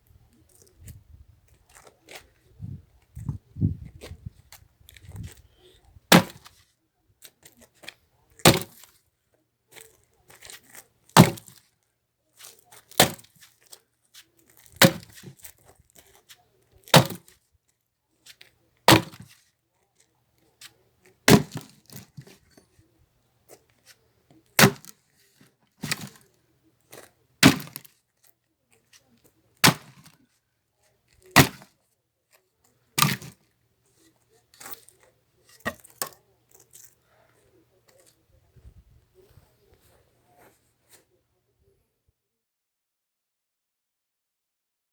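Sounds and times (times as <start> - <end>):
axe splitting firewood: 6.1 - 6.6, 8.4 - 8.9, 9.8 - 11.6, 12.5 - 13.4, 14.5 - 16.2, 16.8 - 17.4, 18.4 - 19.4, 21.2 - 22.6, 24.5 - 25.0, 25.8 - 26.2, 26.9 - 27.9, 29.6 - 30.2, 31.2 - 31.7, 33.0 - 33.4, 34.6 - 37.0.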